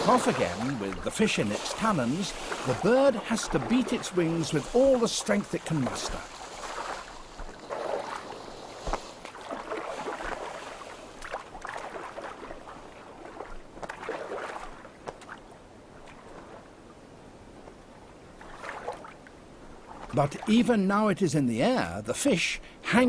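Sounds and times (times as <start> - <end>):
water splashing and dripping: 0.0 - 15.4.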